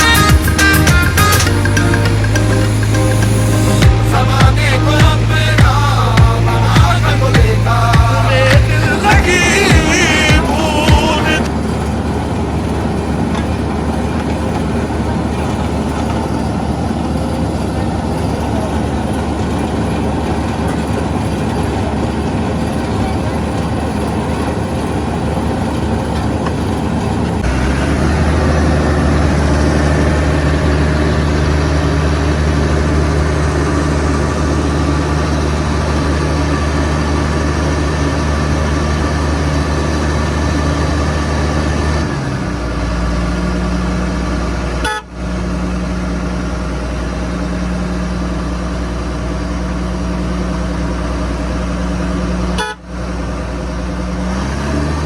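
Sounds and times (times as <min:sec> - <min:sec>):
diesel engines droning: 0:00.0 - 0:55.0.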